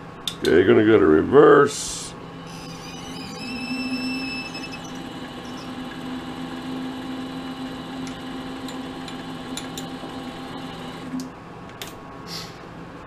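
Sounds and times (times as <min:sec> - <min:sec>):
lathe motor humming: 0:02.4 - 0:11.2.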